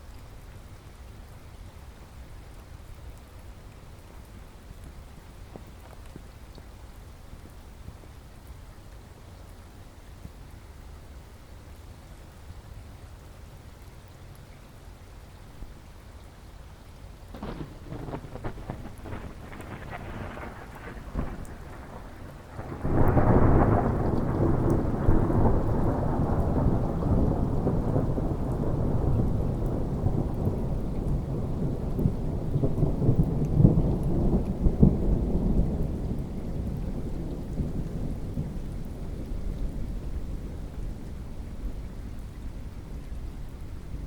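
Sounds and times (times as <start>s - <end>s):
steady rain: 0.0s - 44.0s
thunder rumbling: 17.3s - 44.0s.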